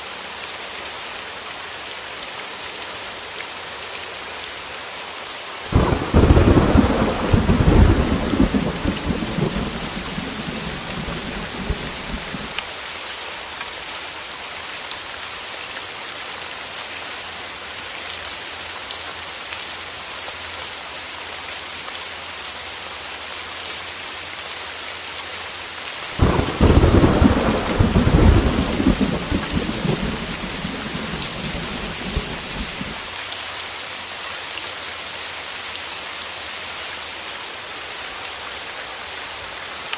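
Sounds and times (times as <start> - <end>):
heavy rain on a window: 2.9 - 36.8
rolling thunder: 5.7 - 12.6, 26.2 - 33.1.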